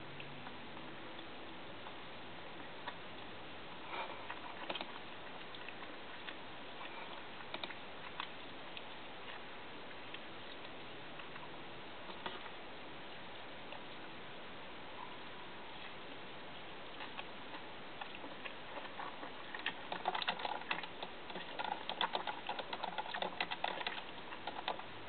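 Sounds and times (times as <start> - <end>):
person eating clicks and smacks: 7.4 - 9.0, 17.0 - 24.9.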